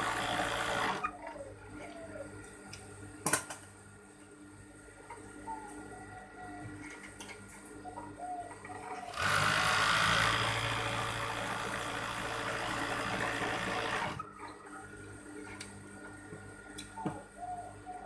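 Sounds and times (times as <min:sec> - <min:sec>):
sewing machine running: 0:00.0 - 0:01.0, 0:09.1 - 0:14.2.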